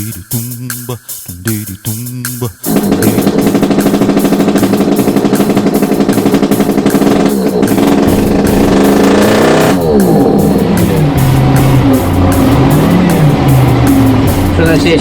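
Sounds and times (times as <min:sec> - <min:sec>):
music with fast beat and plucked strings: 0:00.0 - 0:15.0.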